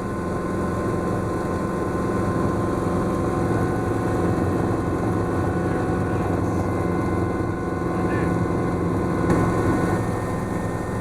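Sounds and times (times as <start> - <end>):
helicopter engine and rotors droning: 0.0 - 11.0.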